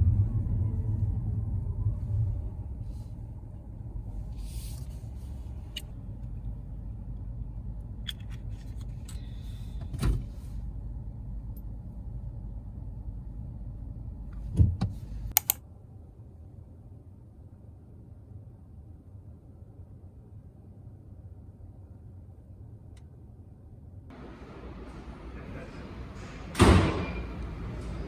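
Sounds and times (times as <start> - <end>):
car rumble from inside: 0.0 - 15.4
sharp clicks and knocks: 14.6 - 15.6
clicks: 15.3 - 15.6.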